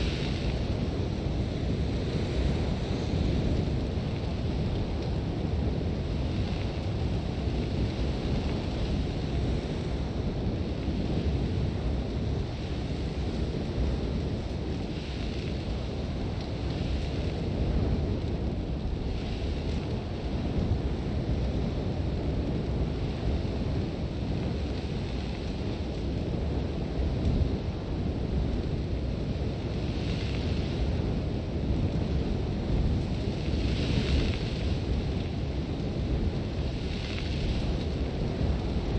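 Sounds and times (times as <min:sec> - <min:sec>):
hiss of blown sand: 0:33.3 - 0:38.9.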